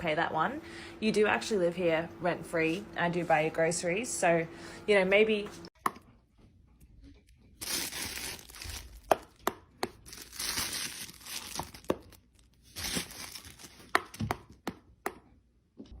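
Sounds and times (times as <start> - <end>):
paper crinkling and tearing: 7.6 - 9.1, 10.0 - 13.9.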